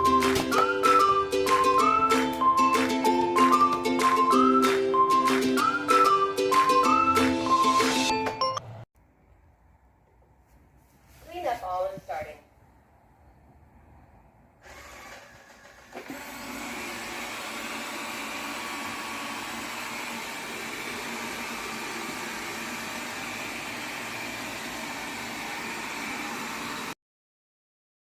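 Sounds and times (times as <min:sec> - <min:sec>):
robot vacuum cleaner running: 0:00.0 - 0:08.8, 0:14.6 - 0:27.0.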